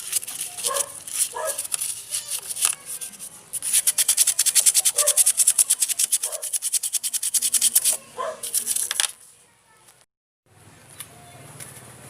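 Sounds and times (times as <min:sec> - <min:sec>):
toothbrush scrubbing: 0:00.0 - 0:09.1.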